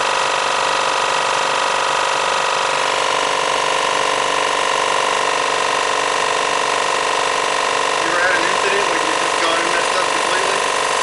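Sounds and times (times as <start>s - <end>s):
surfacing machine cutter whine: 0.0s - 11.0s.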